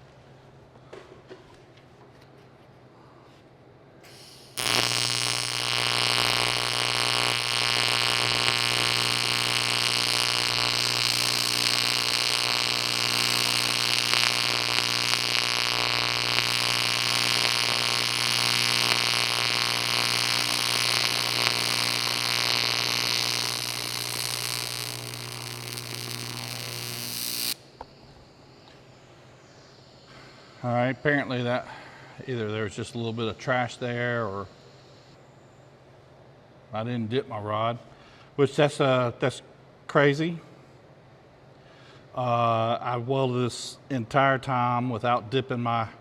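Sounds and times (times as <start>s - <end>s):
welding arc buzz and hiss: 4.0s - 31.5s.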